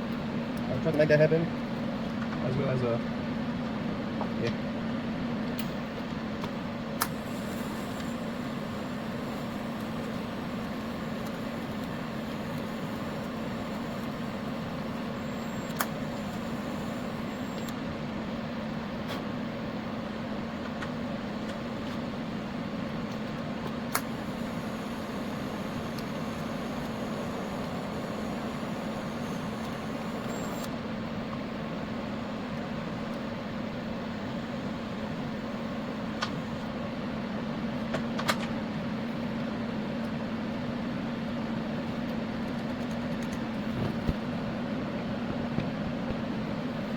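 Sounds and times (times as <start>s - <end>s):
welding machine hum: 5.6s - 36.5s
welding arc hiss: 7.0s - 17.7s, 21.3s - 30.7s
sharp clicks: 15.4s - 16.6s, 24.9s - 30.7s.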